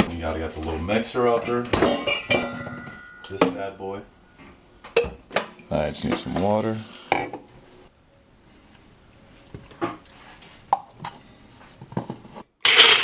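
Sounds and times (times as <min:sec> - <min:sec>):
kitchen items knocking and clicking: 0:01.4 - 0:03.6
loud steady noise: 0:12.6 - 0:13.0.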